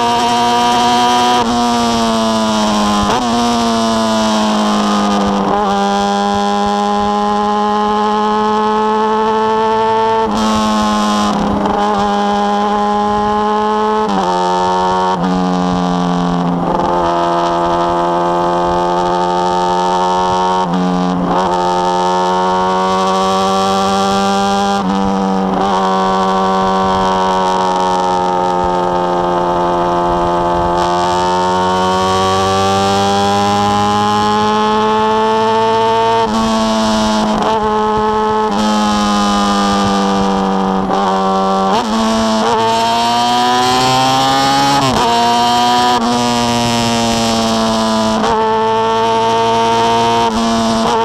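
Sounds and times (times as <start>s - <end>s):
motorcycle engine accelerating: 0.0s - 51.0s
motorcycle engine running: 21.3s - 42.7s.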